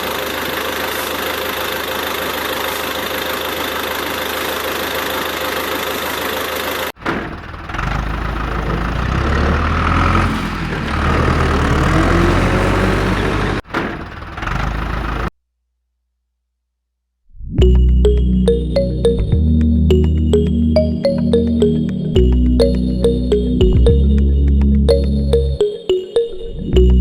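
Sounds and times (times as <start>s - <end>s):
vehicle engine running: 0.0s - 15.3s.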